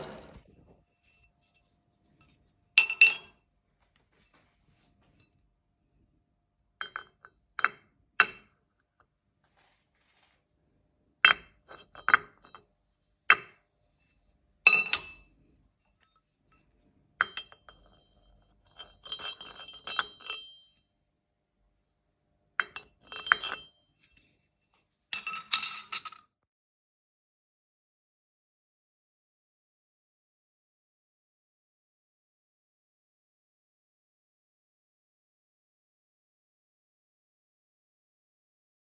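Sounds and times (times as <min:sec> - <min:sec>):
metal objects clinking: 0:25.2 - 0:26.2.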